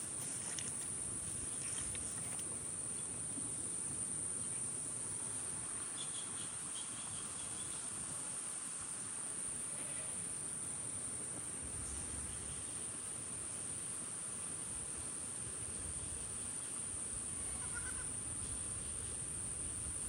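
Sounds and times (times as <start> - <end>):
insects trilling: 0.0 - 20.0
low outdoor rustle: 0.0 - 20.0.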